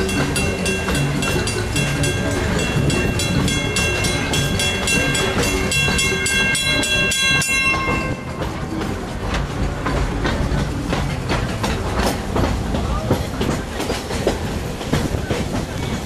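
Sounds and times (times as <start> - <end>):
high steady tones: 0.0 - 9.2
steam train clattering: 0.0 - 16.0.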